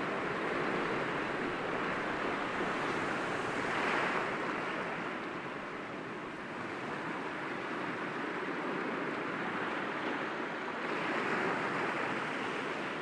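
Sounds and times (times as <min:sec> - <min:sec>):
sea waves breaking against rocks: 0:00.1 - 0:05.2.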